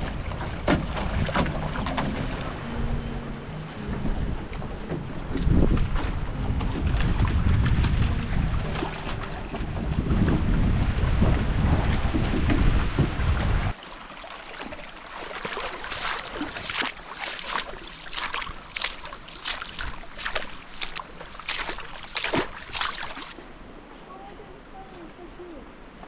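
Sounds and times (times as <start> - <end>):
wind buffeting microphone: 0.0 - 13.8
water splashing and lapping: 0.0 - 23.7.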